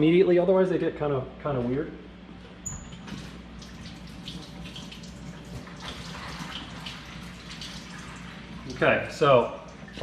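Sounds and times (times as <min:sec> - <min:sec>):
water running from a tap: 0:02.9 - 0:10.0.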